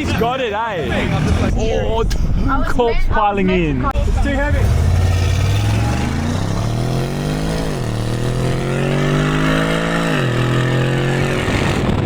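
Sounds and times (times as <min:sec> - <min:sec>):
car engine accelerating through gears: 0:04.2 - 0:12.0.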